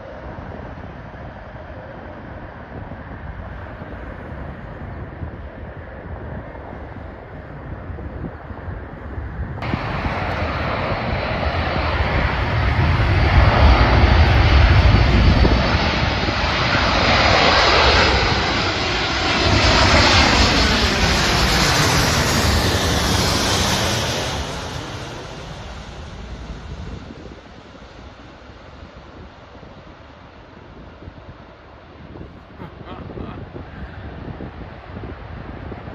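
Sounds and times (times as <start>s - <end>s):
airplane engines passing: 0.0s - 35.9s.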